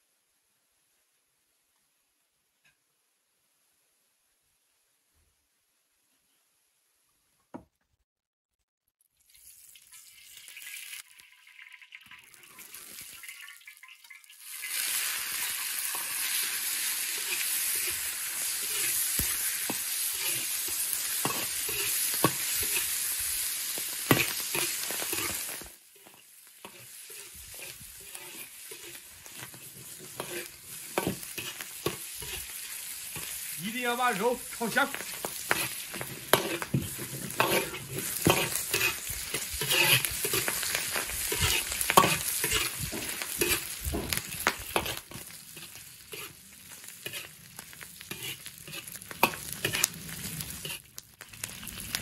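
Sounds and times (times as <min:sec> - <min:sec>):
pork sizzling in a wok: 0:09.0 - 0:52.0
metal ladle scraping a wok: 0:14.6 - 0:33.4, 0:34.9 - 0:50.9.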